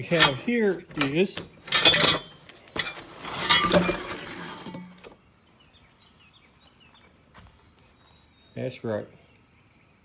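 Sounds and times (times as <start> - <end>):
packaging rustling and scraping: 0.0 - 4.8.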